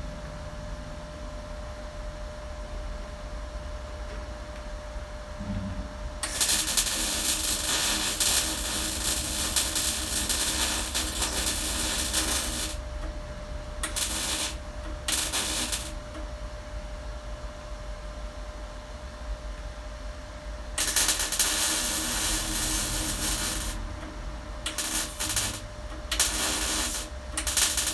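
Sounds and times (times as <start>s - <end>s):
steady hum: 0.0s - 27.9s
welder crackling hiss: 6.2s - 13.1s, 13.8s - 16.2s, 20.8s - 24.0s, 24.7s - 27.9s.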